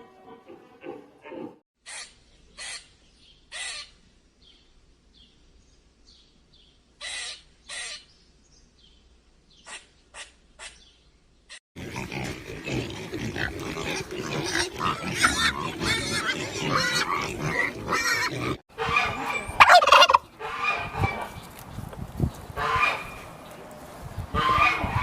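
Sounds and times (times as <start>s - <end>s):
flock of fowl calling: 18.7s - 21.3s, 22.6s - 23.2s, 24.4s - 25.0s.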